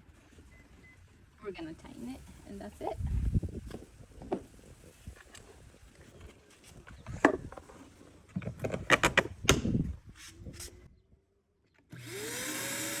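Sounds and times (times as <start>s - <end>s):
wet dry vacuum motor whining: 12.0s - 13.0s.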